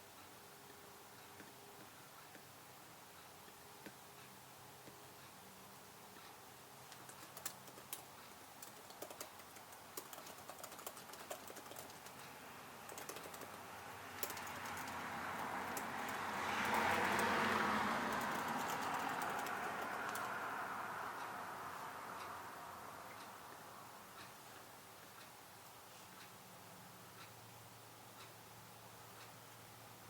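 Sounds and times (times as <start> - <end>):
keyboard typing: 6.9 - 21.3
broad rush of noise: 8.7 - 24.0.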